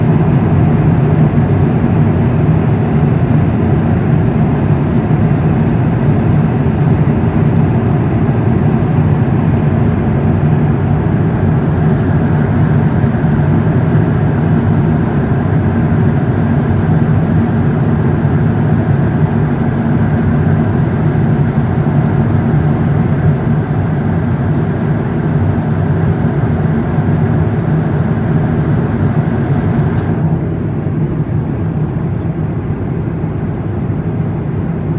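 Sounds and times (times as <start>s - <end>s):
jet engines droning: 0.0s - 16.4s, 27.5s - 34.9s.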